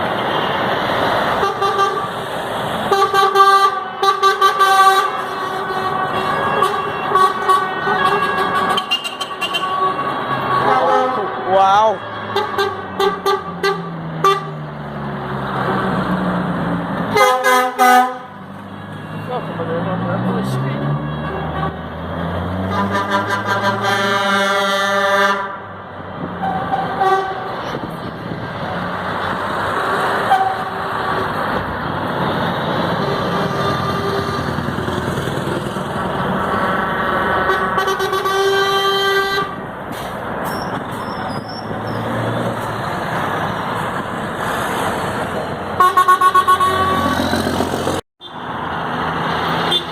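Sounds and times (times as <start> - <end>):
truck horn blasts: 1.4 - 2.1, 2.9 - 14.6, 17.1 - 18.4, 20.9 - 21.8, 22.6 - 25.7, 26.4 - 27.6, 30.2 - 31.3, 33.0 - 34.7, 37.4 - 39.6, 45.8 - 47.6, 49.6 - 49.9.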